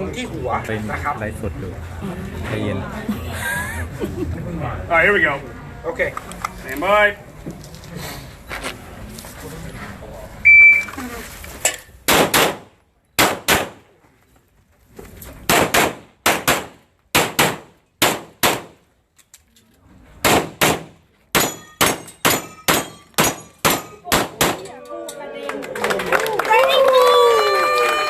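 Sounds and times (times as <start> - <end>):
pistol shots: 12.1 - 13.8, 15.5 - 18.8, 20.2 - 24.7.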